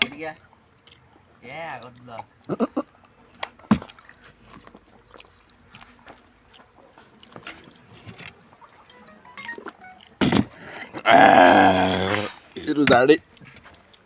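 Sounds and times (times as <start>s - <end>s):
person chewing and biting: 0.3s - 1.1s, 3.0s - 7.9s.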